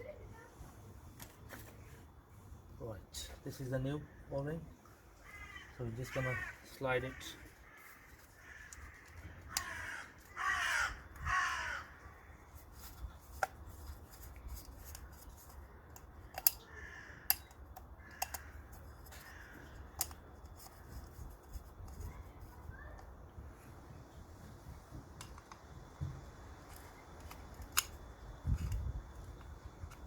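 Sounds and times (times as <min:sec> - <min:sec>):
crow cawing: 0:05.2 - 0:12.4, 0:16.3 - 0:20.2
hands clicking and tapping parts: 0:12.9 - 0:16.6, 0:17.2 - 0:22.1.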